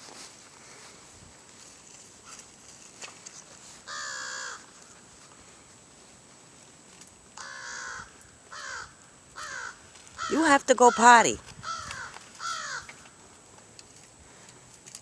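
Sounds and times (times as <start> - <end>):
loud drawn-out animal calls: 3.9 - 4.7, 7.4 - 13.1.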